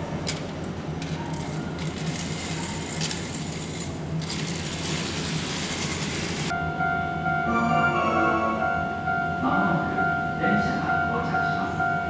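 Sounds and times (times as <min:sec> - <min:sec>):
train low rumble: 0:00.0 - 0:12.0
station chime tones: 0:06.6 - 0:12.0.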